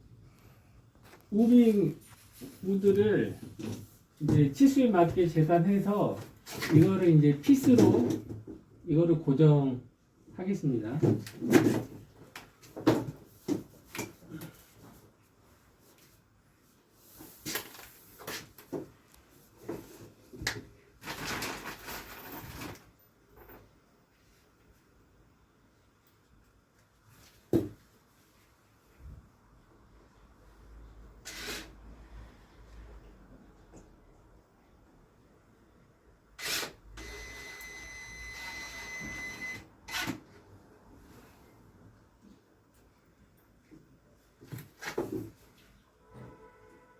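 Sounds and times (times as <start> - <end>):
power drill whining: 36.4 - 40.2.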